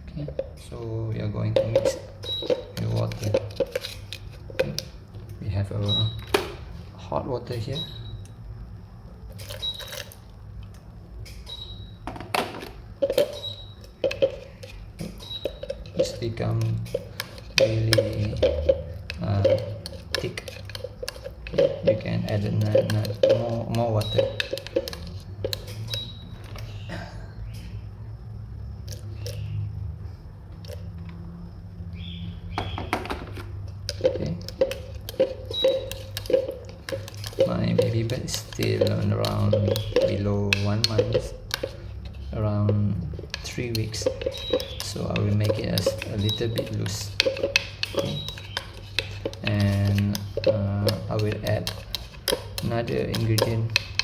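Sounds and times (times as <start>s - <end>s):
water stirred into bread: 1.2s - 5.4s, 12.8s - 26.7s, 33.6s - 54.0s
spoon clinking against bowl: 1.4s - 5.0s, 13.0s - 26.7s, 33.9s - 54.0s.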